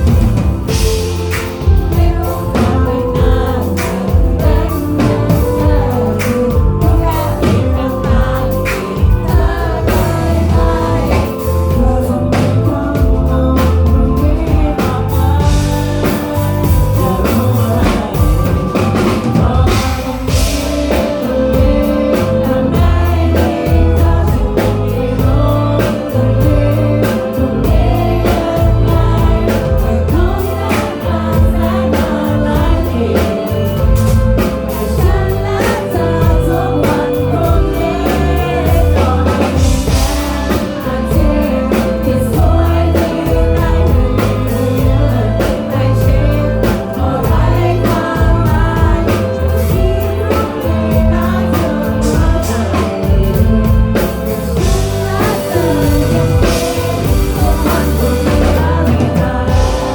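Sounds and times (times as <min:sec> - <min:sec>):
drum beat: 0:00.0 - 0:59.9
heavy bass: 0:00.0 - 0:59.9
live band playing: 0:00.0 - 0:59.9
person singing: 0:00.0 - 0:59.9.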